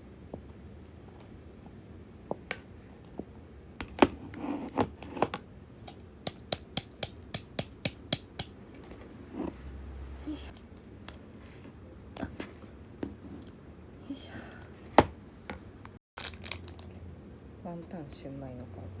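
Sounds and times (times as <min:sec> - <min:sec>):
kitchen taps and clicks: 0:06.3 - 0:08.6.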